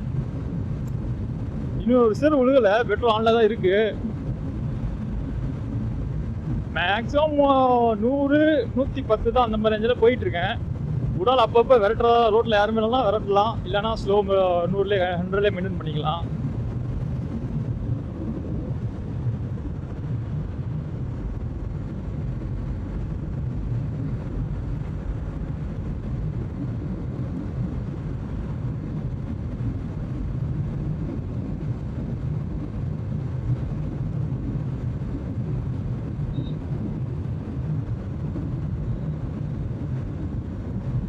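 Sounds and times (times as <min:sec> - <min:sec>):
motorcycle engine drone: 0:00.0 - 0:41.0
wind rush: 0:00.0 - 0:41.0.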